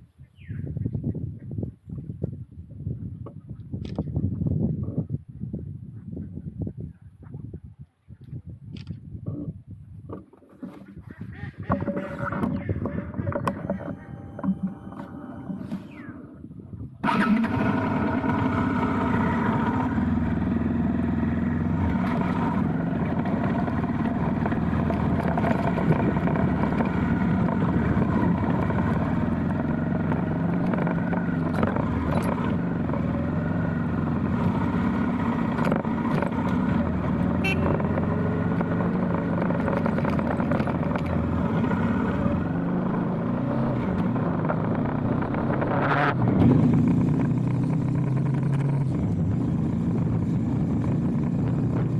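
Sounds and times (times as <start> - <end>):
motorcycle engine running: 11.7 - 51.9.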